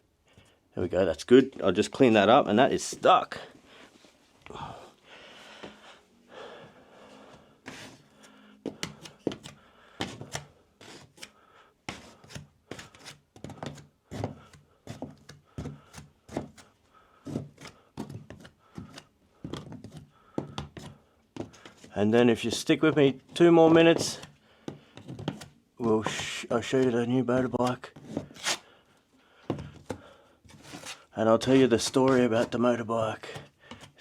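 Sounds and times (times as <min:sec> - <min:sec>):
hand tool scraping cement: 0:21.6 - 0:24.3, 0:25.0 - 0:28.6, 0:30.4 - 0:32.6.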